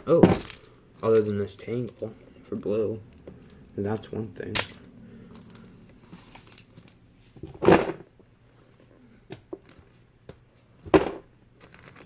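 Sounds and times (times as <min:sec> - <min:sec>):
plastic toys rustling: 0:00.3 - 0:02.1, 0:04.5 - 0:08.0, 0:11.6 - 0:12.0.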